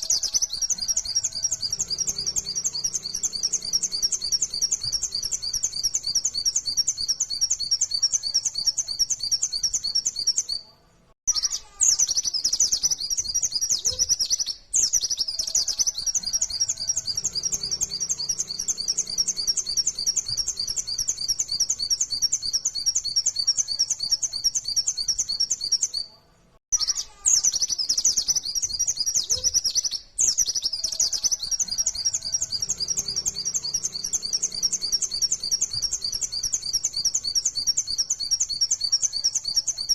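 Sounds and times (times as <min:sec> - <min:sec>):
bird singing high chirps: 0:00.0 - 0:10.7, 0:11.3 - 0:39.9.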